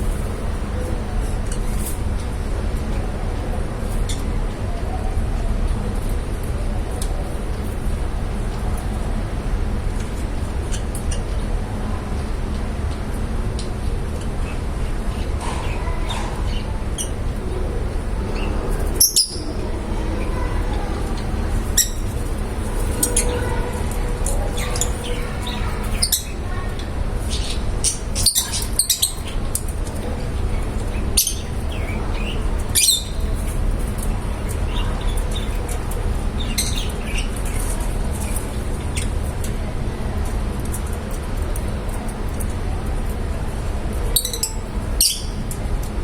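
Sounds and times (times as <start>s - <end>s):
parrots chirping: 15.6s - 39.1s, 44.1s - 45.5s.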